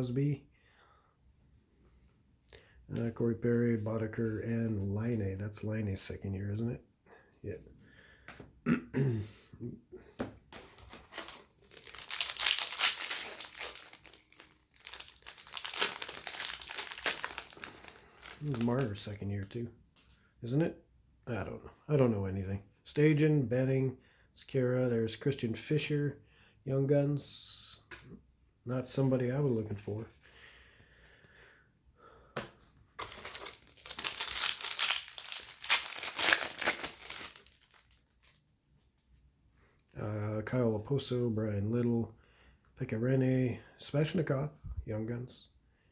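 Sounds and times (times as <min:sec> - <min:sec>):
plastic wrapper crinkling: 0:10.7 - 0:19.6, 0:33.0 - 0:38.5.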